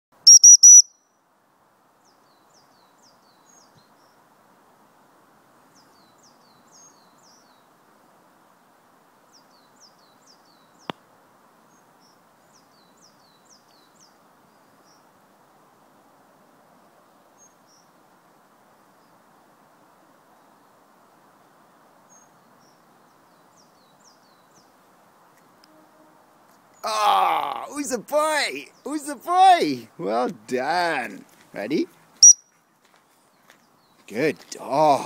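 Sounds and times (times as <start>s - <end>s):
faint bird chirps: 0.2s - 1.2s, 32.2s - 32.6s
background hiss: 0.2s - 35.0s
loud dog whistle blast: 0.3s - 0.9s.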